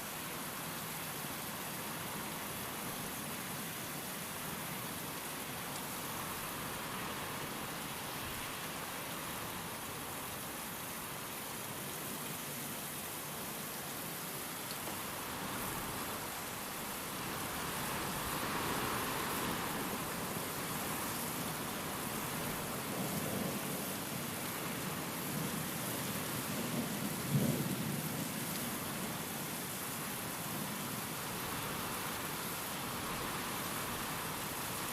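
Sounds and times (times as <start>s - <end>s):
steady rain: 0.0s - 34.9s
wind: 0.0s - 34.9s.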